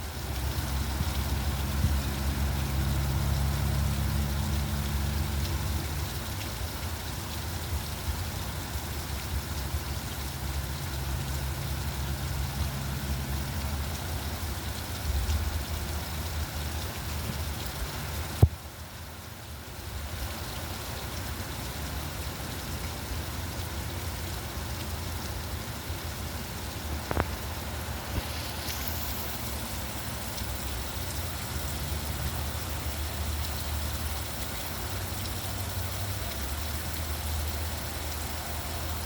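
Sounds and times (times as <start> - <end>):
rain hiss: 0.0 - 39.0
vehicle engine idling: 23.6 - 39.0.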